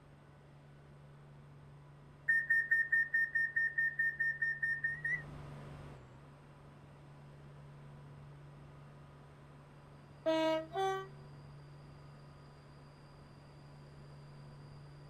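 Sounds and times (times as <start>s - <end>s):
rapid high beeps: 2.3s - 5.2s.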